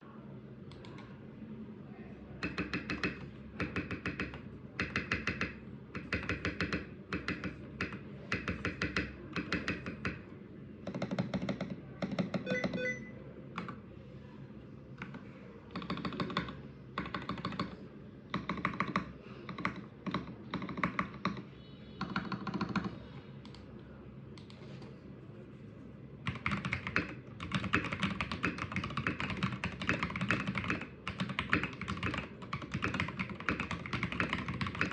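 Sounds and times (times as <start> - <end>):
mechanical keyboard typing: 2.4 - 10.2, 10.8 - 13.0, 15.0 - 23.6, 26.2 - 34.9.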